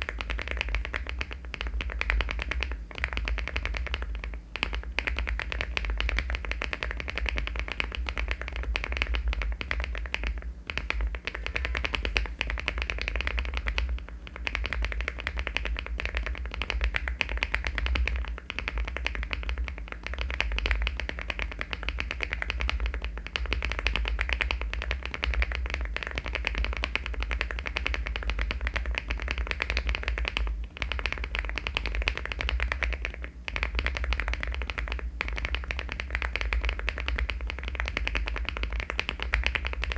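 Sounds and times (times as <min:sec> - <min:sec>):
fast mechanical keyboard typing: 0:00.0 - 0:39.9
steady low hum: 0:00.0 - 0:39.9.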